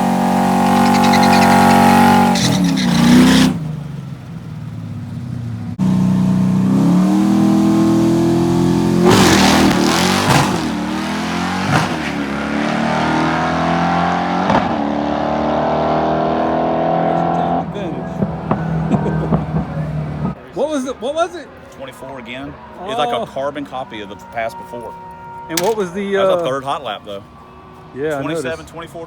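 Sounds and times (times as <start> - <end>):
car engine under throttle: 0.0 - 20.4.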